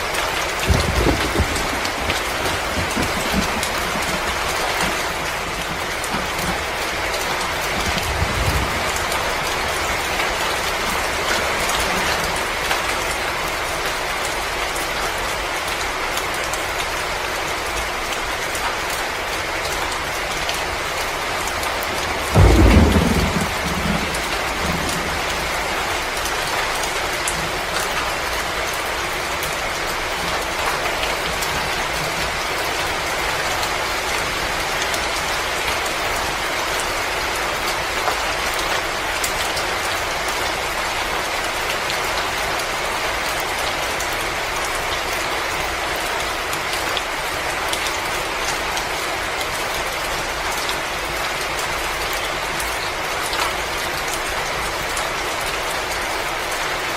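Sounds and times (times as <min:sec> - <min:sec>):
wood fire crackling: 0:00.0 - 0:09.0.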